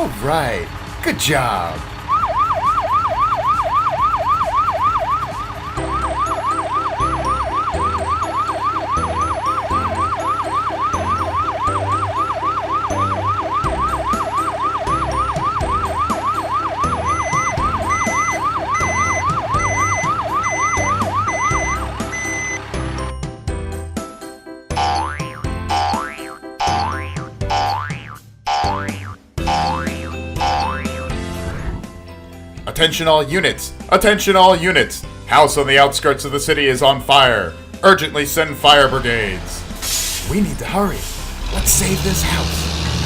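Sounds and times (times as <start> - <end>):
low pulsing beat: 1.6 - 22.6
cartoon siren wailing: 2.0 - 22.6
short high beeps: 17.0 - 22.6.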